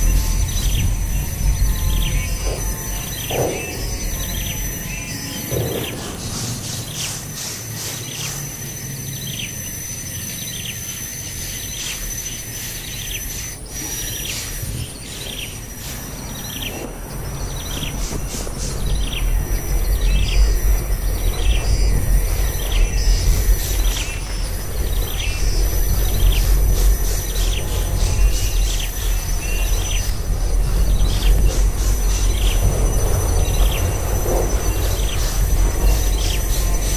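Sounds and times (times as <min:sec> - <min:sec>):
low rumble: 0:00.0 - 0:06.4
bird chirping: 0:00.0 - 0:36.9
high insect-like whine: 0:00.0 - 0:36.9.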